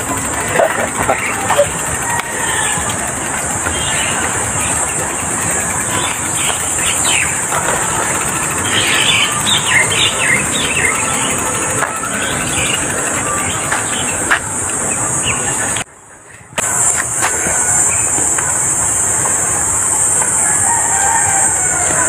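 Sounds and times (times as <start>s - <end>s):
birds chirping: 0.0s - 22.0s
steady high-pitched hiss: 0.0s - 22.0s.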